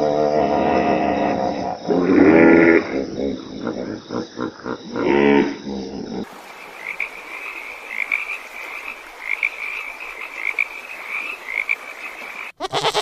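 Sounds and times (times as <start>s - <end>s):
frogs croaking: 0.0s - 13.0s
short animal call: 12.6s - 13.0s.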